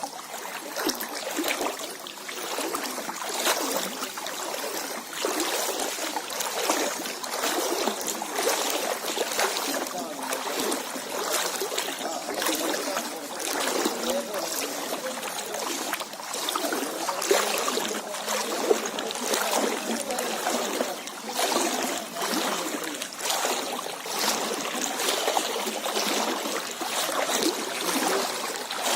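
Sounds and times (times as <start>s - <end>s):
floodwater rushing: 0.0s - 28.9s.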